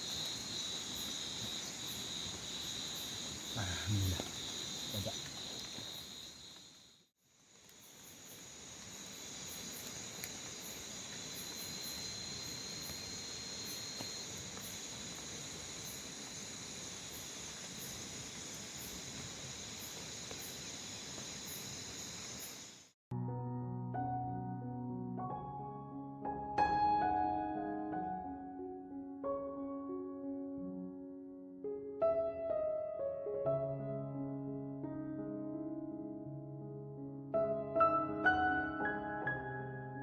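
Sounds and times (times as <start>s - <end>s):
crickets and insects trilling: 0.0s - 23.0s.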